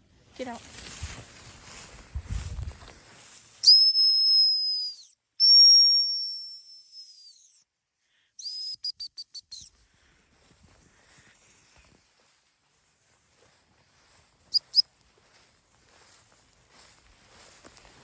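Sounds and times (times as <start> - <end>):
dog training whistle blasts: 3.6 - 7.6, 8.4 - 9.7.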